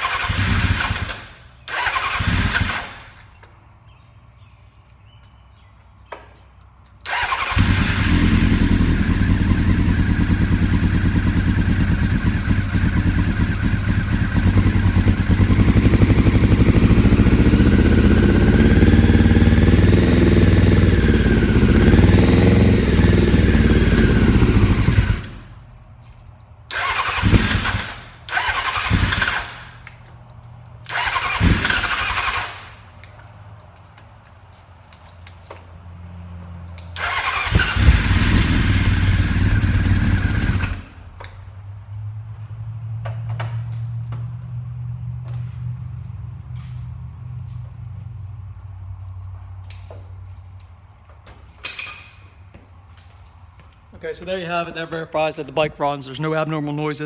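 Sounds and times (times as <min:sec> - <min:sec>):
engine cranking and firing: 0:00.0 - 0:03.5, 0:07.0 - 0:30.2, 0:30.8 - 0:33.0, 0:36.8 - 0:41.8
motorcycle engine idling: 0:07.1 - 0:26.2, 0:37.0 - 0:41.5.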